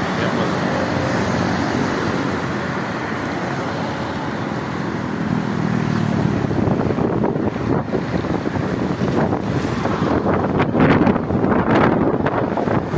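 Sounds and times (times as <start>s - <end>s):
traffic rumble: 0.0s - 12.9s
wind buffeting microphone: 4.4s - 12.9s.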